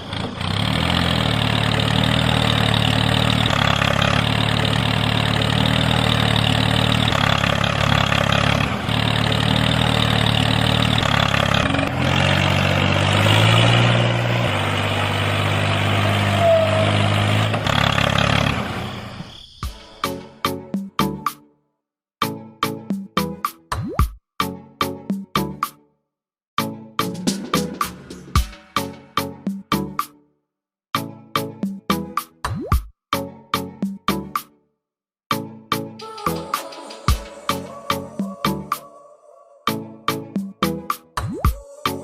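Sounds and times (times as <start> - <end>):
small tractor engine running: 0.0 - 19.3.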